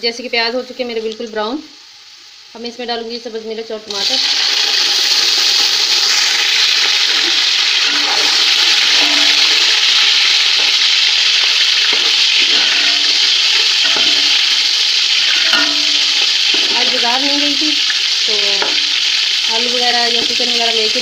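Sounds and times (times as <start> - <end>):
food sizzling in hot fat: 0.0 - 21.0.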